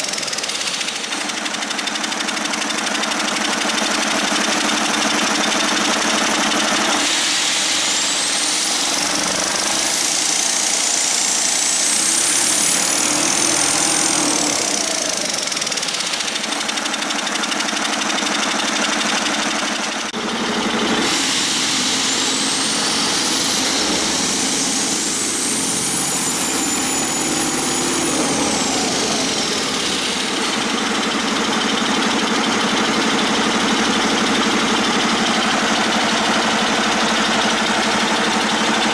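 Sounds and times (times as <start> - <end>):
diesel engine running: 0.0 - 38.9
high turbo whistle: 5.8 - 16.4, 20.8 - 38.9.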